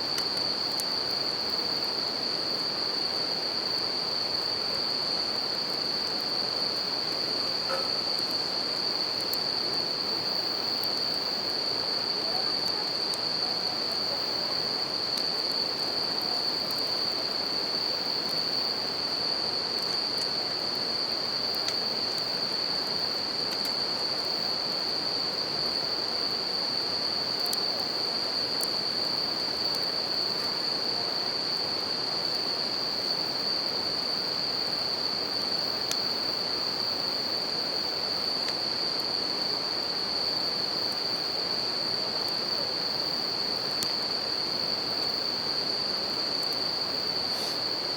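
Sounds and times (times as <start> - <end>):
crickets chirping: 0.0 - 47.9.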